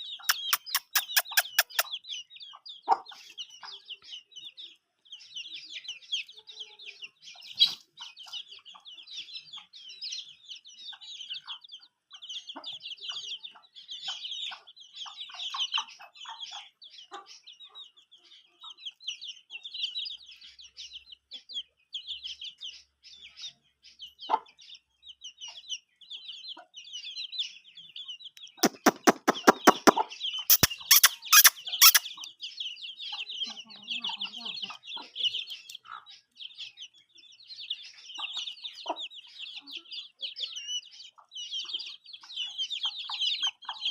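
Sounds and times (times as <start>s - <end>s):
hen clucking: 0.0s - 4.7s, 5.8s - 20.3s, 24.0s - 37.0s, 37.6s - 43.9s
chicks peeping: 0.0s - 43.9s
loud sharp taps: 28.6s - 30.0s.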